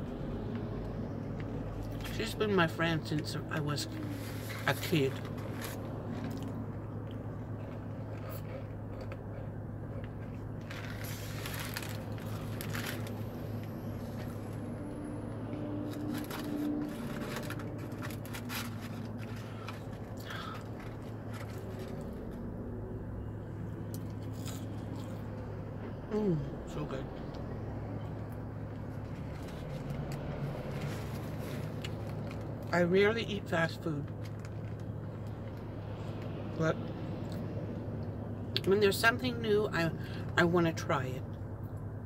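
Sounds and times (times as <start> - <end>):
person chewing with crunches: 5.2 - 14.6, 23.9 - 25.5.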